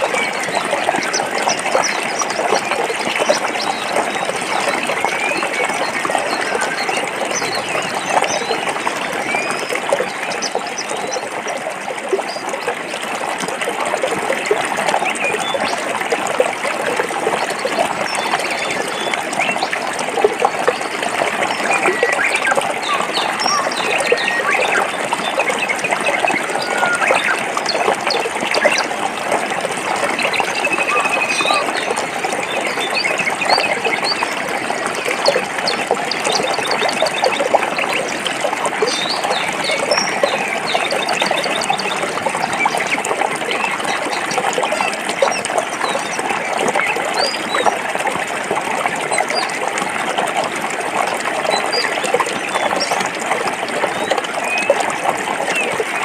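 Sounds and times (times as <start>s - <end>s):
stream running over rocks: 0.0s - 56.0s
small birds chirping: 20.5s - 28.9s.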